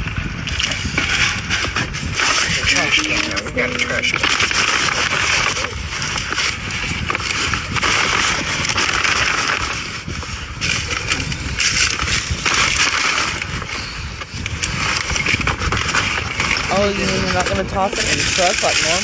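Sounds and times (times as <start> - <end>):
garbage truck rumbling: 2.3 - 6.1, 16.5 - 19.0.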